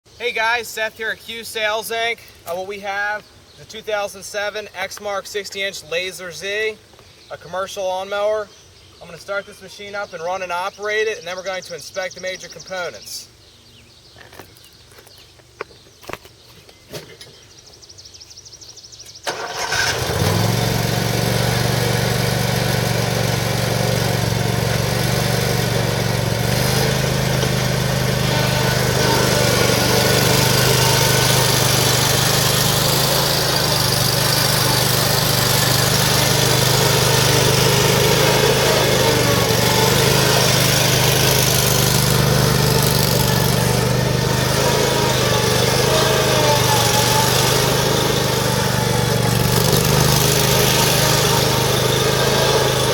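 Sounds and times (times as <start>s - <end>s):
mower engine running: 19.2s - 52.9s.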